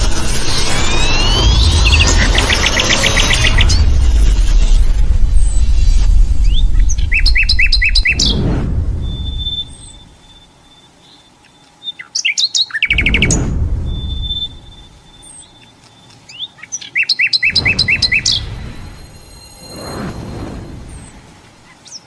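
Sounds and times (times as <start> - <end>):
low rumble: 0.0 - 10.5, 12.9 - 15.4, 17.5 - 21.6
bird chirping bubbly notes: 5.3 - 10.6, 12.8 - 15.6, 17.2 - 21.7.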